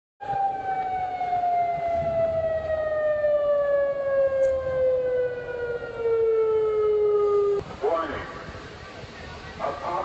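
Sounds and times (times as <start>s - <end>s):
warning siren wailing: 0.2s - 7.6s.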